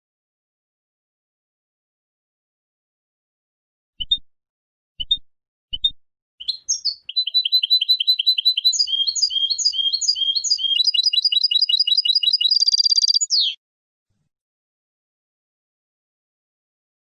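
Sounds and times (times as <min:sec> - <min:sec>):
goldfinch singing trilling song: 0:06.4 - 0:13.6.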